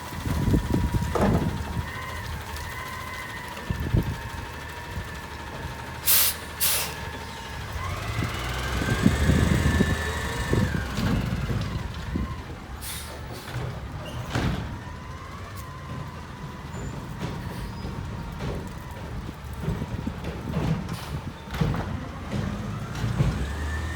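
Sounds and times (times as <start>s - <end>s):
garbage truck engine whine: 0.0s - 23.9s
sharp air hisses: 6.1s - 7.0s.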